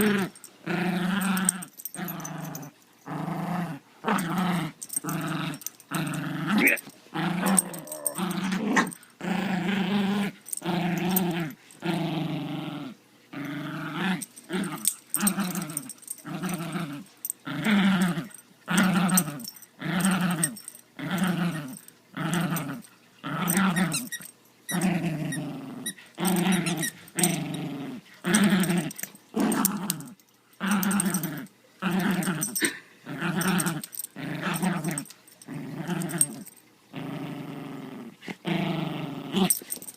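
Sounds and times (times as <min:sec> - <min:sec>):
puppy growling: 0:00.0 - 0:39.9.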